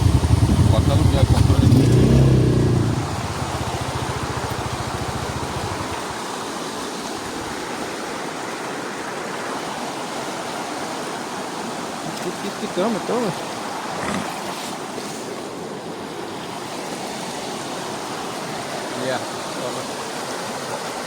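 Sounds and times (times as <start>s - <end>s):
atv engine idling: 0.0s - 6.2s
creek water running over rocks: 0.0s - 21.0s.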